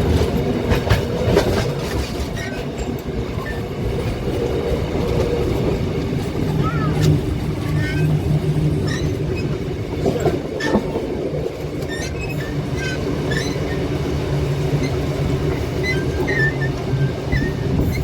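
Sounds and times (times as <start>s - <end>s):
rail clicks: 0.0s - 18.0s
train carriages rumbling: 0.0s - 18.0s
wheels squealing: 6.4s - 11.0s, 11.8s - 14.0s, 14.7s - 18.0s.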